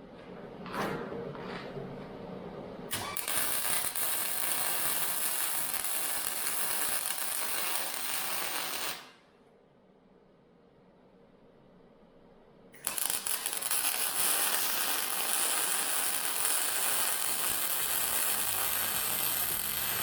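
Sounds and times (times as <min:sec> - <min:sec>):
welding arc crackling: 0:02.9 - 0:09.2, 0:12.8 - 0:20.0.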